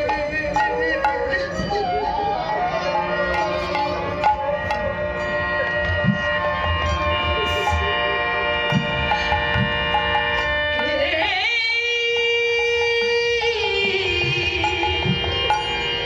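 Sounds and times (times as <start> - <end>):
held instrument tones: 0.0 - 10.5
drum strokes: 0.0 - 10.9.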